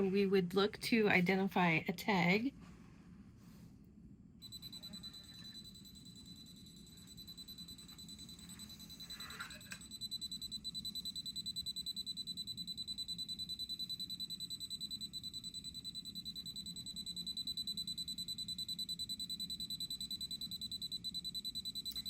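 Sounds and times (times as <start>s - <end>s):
rapid high beeps: 4.4s - 22.0s.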